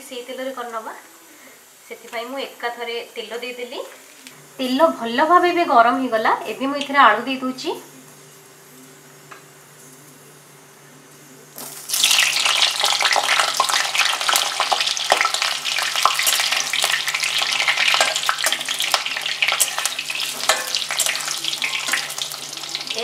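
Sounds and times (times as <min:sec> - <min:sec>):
potatoes sizzling in hot oil: 0:00.0 - 0:08.4, 0:11.5 - 0:23.0
spatula tapping and scraping: 0:18.0 - 0:22.1.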